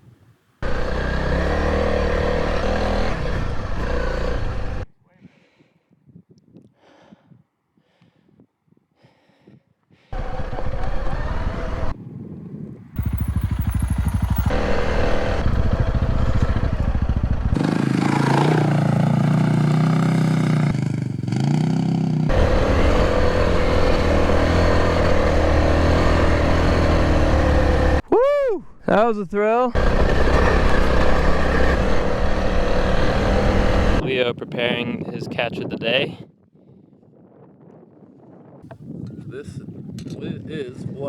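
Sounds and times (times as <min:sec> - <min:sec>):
motorcycle engines revving: 0:00.6 - 0:04.8, 0:10.2 - 0:12.0, 0:13.0 - 0:28.0, 0:29.7 - 0:34.0.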